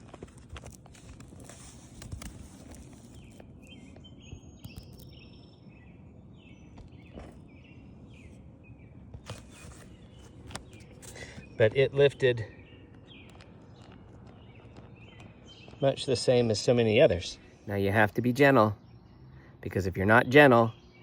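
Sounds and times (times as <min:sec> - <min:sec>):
shingles clicking and scraping: 0:00.0 - 0:04.0
faint outdoor background noise: 0:00.0 - 0:21.0
small birds chirping: 0:00.0 - 0:21.0.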